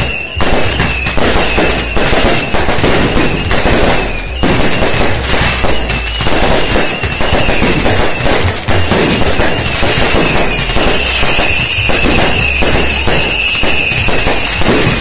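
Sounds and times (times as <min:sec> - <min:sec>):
thin high whistle: 0:00.0 - 0:02.5, 0:03.2 - 0:04.8, 0:09.4 - 0:14.7
firecrackers and fireworks bangs: 0:00.0 - 0:15.0.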